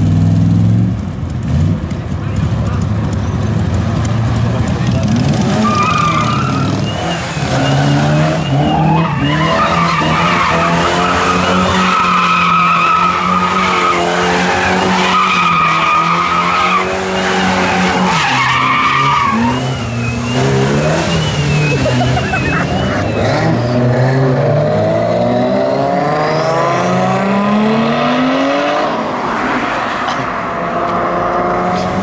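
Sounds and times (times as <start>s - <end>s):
engine at high revs: 1.5s - 32.0s
car tyres squealing: 4.4s - 24.3s.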